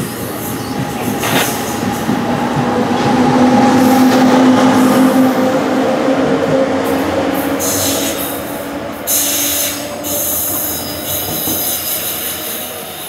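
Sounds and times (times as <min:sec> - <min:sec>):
rail rumble: 0:00.0 - 0:13.0
train wheels squealing: 0:09.1 - 0:13.0.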